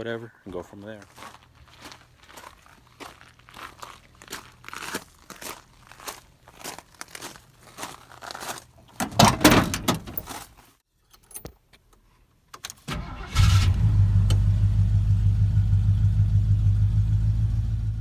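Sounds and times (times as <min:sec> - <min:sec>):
truck engine starting and idling: 0:09.0 - 0:10.3, 0:12.8 - 0:18.0.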